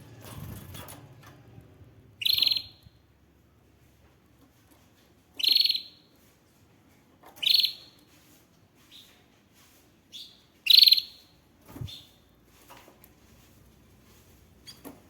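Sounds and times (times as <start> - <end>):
canary singing trills: 2.2 - 3.0, 5.4 - 6.2, 7.4 - 8.0, 10.1 - 12.2.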